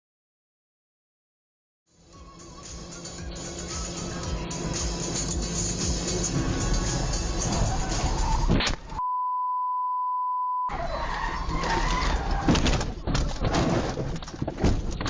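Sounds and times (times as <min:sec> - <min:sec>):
vehicle and road noise: 0:01.9 - 0:09.0, 0:10.7 - 0:15.0
censor beep: 0:09.0 - 0:10.8.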